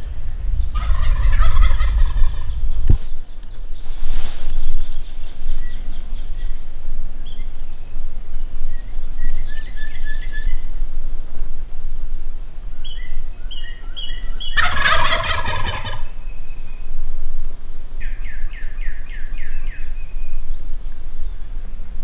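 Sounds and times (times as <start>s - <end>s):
turkey gobbling: 0.8s - 2.6s, 14.2s - 16.2s
turkey yelping: 0.8s - 2.6s, 14.5s - 16.1s.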